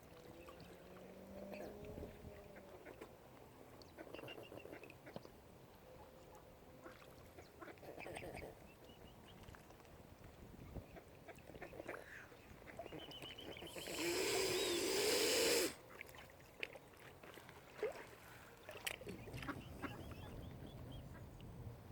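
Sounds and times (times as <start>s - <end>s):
swan hissing: 13.6s - 15.8s.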